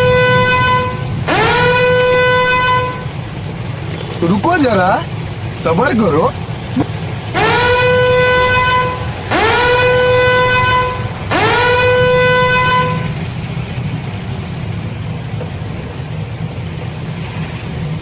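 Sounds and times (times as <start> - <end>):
vehicle horn blasts: 0.0 - 3.2, 7.4 - 13.2
low rumble: 0.0 - 18.0.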